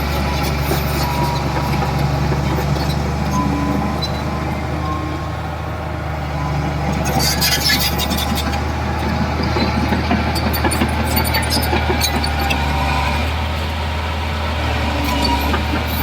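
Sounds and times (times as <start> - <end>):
heavy diesel engine humming: 0.0 - 16.0.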